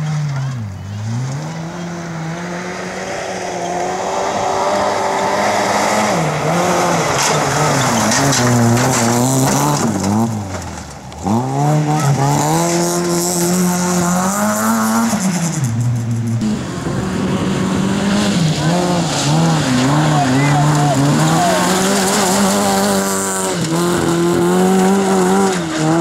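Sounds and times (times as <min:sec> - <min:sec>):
rally car engine revving hard: 0:00.0 - 0:26.0.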